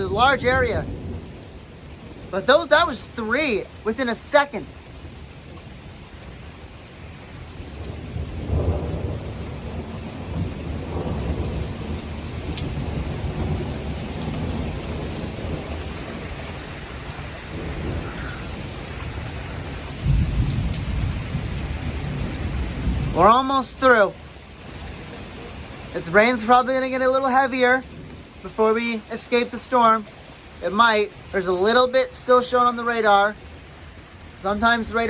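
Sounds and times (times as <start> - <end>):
steady rain: 0.0 - 35.0
thunder rumbling: 0.0 - 35.0
lightning strikes: 7.7 - 24.0.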